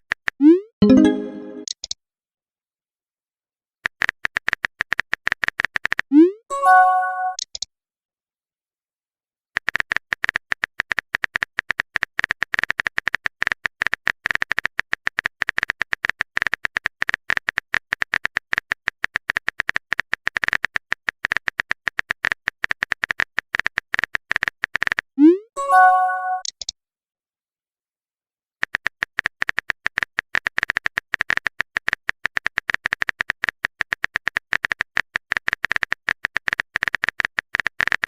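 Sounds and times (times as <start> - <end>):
keyboard typing clicks: 0.4 - 2.0, 26.0 - 26.7.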